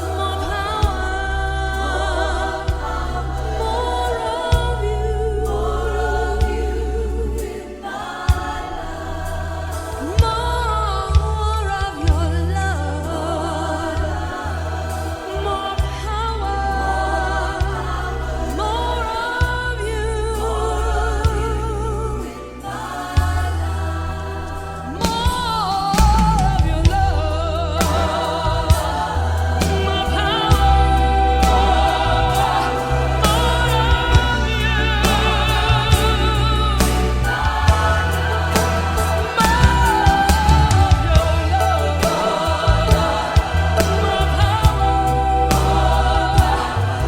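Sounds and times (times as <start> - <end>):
steady low bass: 0.0 - 7.7, 8.3 - 47.0
choir singing slow song: 0.0 - 47.0
regular beat: 25.1 - 47.0.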